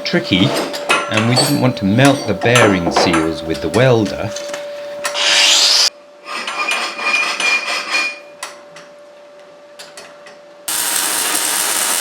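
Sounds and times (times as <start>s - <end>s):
welder humming: 1.8s - 5.9s, 10.7s - 12.0s
electric welding crackling hiss: 10.7s - 12.0s.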